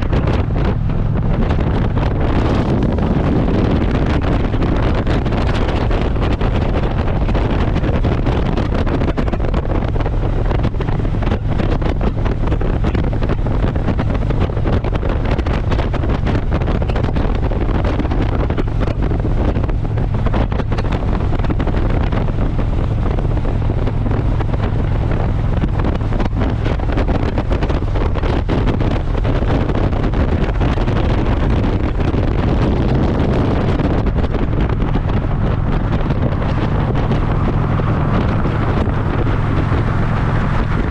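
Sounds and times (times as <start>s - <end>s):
motorcycle engine and road drone: 0.0s - 40.9s
wind rush on microphone: 0.0s - 40.9s.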